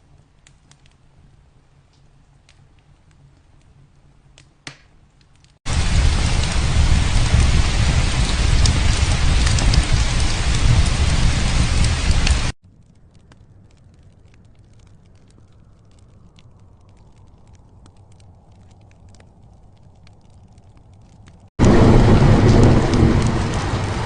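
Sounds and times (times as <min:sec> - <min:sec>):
faint ticks and crackles: 0:00.0 - 0:05.6, 0:12.2 - 0:21.8
heavy rain downpour: 0:05.7 - 0:12.6, 0:21.6 - 0:24.0.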